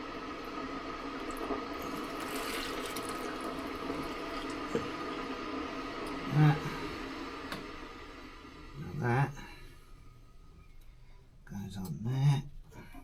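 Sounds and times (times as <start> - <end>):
faint steady hum: 0.0 - 13.0
liquid trickling from hose: 1.1 - 5.3.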